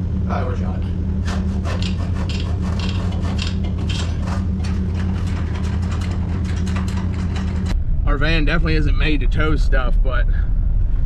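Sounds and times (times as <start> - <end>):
van engine and road rumble: 0.0 - 11.0
clicks and rattles: 1.7 - 7.8.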